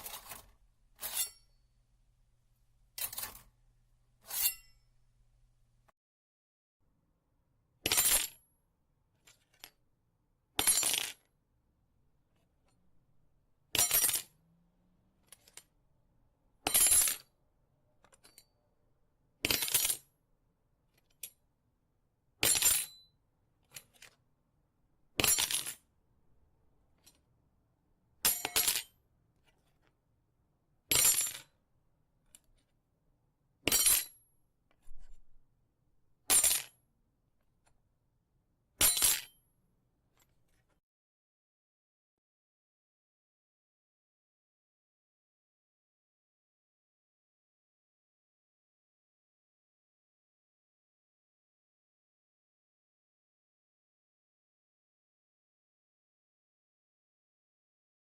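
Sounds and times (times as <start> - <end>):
metallic knife strokes: 0.0 - 1.7, 3.0 - 3.6, 4.2 - 4.9.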